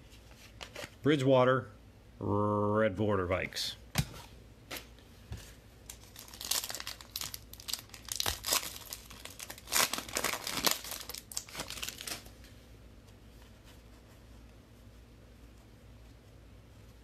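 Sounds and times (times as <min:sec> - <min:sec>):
plastic wrapper crinkling and tearing: 0:05.8 - 0:12.3.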